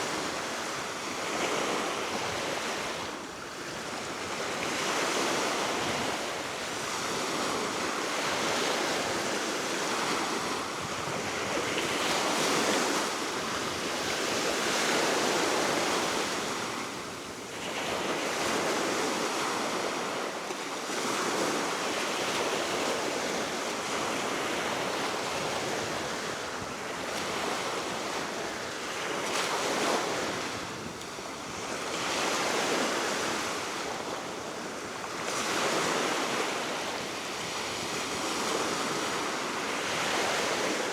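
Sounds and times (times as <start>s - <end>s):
wind: 0.0s - 40.9s
wind rumble on microphone: 10.0s - 17.2s.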